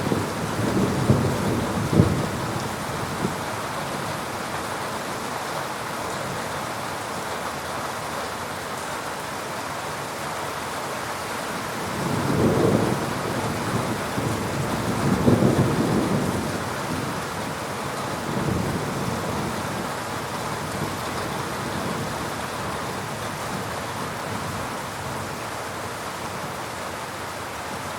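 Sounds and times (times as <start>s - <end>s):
thunder rumbling: 0.0s - 3.4s, 11.9s - 17.2s
rain falling: 0.0s - 27.9s.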